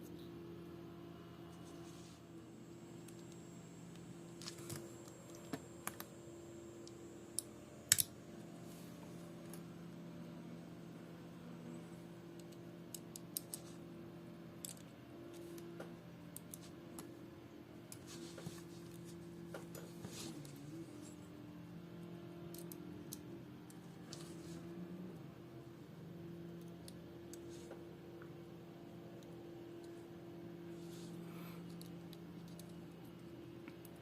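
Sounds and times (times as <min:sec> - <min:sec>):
small tools clicking on metal parts: 0:06.8 - 0:08.1.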